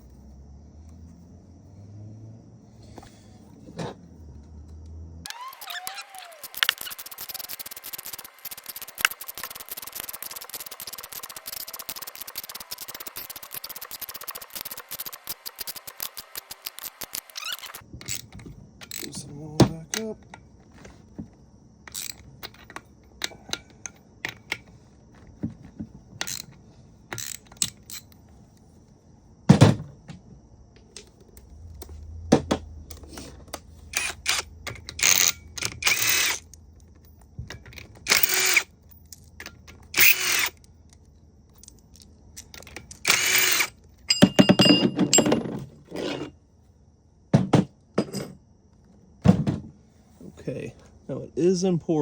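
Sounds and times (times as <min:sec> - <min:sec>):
short rasping bursts: 0:05.3 - 0:17.8
metal clicks and clanks: 0:06.4 - 0:20.4, 0:26.2 - 0:28.2.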